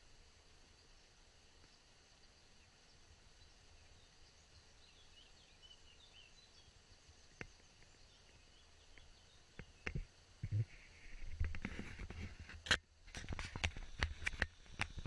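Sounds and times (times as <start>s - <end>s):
faint small bird chirps: 0.0s - 11.0s.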